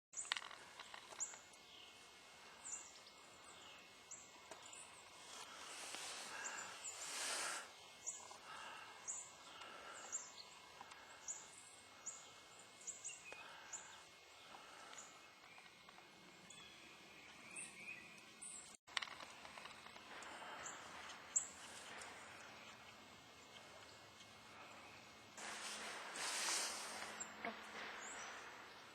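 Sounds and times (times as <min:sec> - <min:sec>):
small birds chirping: 0:00.2 - 0:28.9
outdoor hiss: 0:00.6 - 0:15.5, 0:20.0 - 0:28.9.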